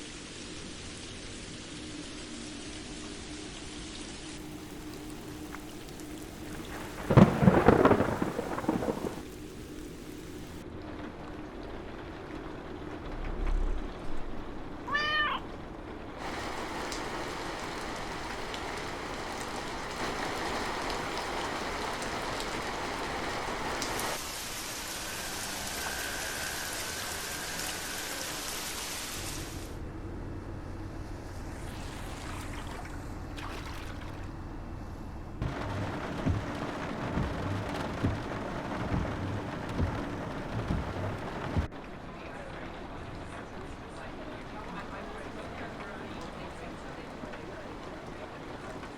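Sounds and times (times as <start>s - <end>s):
rain falling: 0.0s - 48.9s
low thuds: 4.6s - 10.6s, 33.9s - 41.7s.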